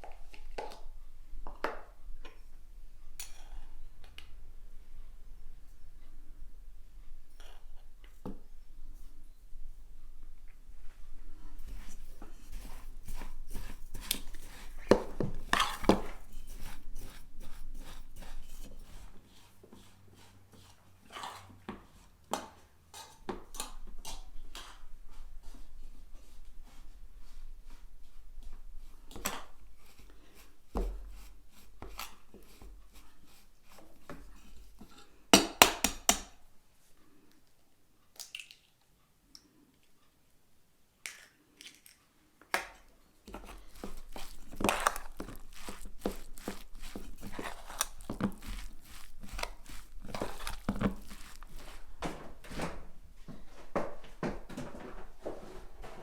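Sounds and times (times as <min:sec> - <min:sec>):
crinkling and rustling handling noise: 0:10.4 - 0:19.9, 0:43.2 - 0:56.0.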